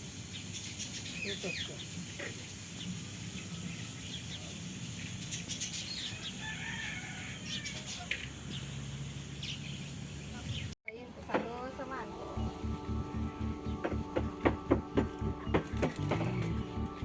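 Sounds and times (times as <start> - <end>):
birds chirping: 7.1 - 10.8, 11.6 - 17.0
low steady hum: 11.9 - 17.0.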